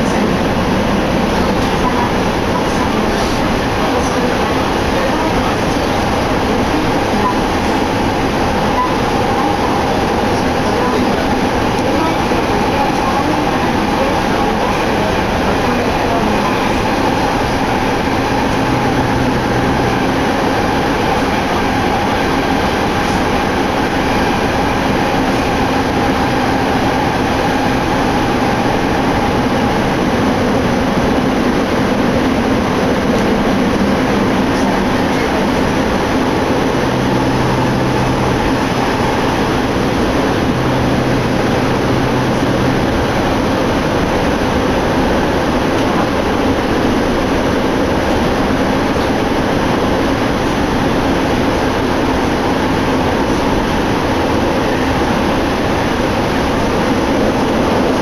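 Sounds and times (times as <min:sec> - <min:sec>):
train wheels rumbling: 0:00.0 - 0:58.0.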